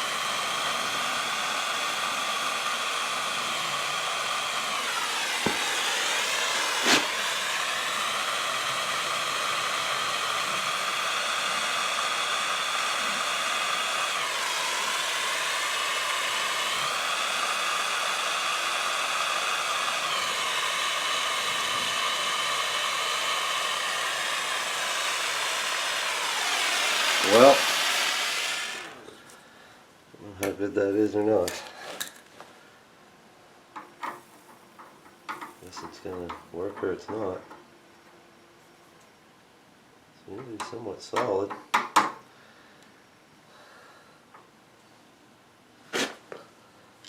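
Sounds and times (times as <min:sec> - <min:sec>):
gas torch flame hissing: 0:00.0 - 0:29.3, 0:33.8 - 0:37.4.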